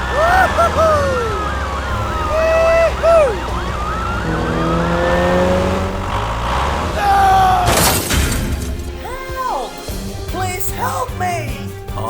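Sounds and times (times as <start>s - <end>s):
siren yelping: 0.0s - 7.7s
sliding tones: 0.0s - 9.0s
low engine rumble: 0.0s - 9.2s.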